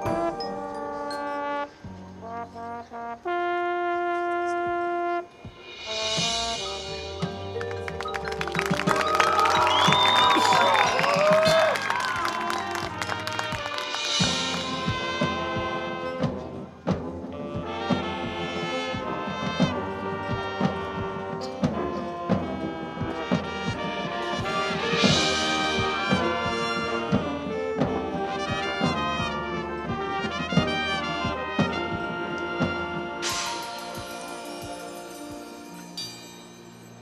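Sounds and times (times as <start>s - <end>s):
brass chords: 0.0s - 37.0s
drum strikes: 5.4s - 35.5s
cymbal crashes: 5.5s - 7.6s.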